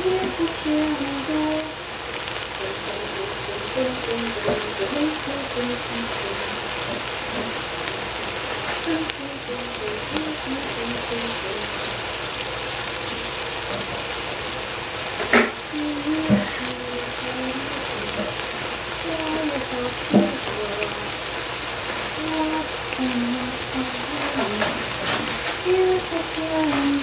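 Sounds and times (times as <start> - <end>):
vegetables sizzling in a pot: 0.0 - 27.0
faint tune of held notes: 8.9 - 11.8.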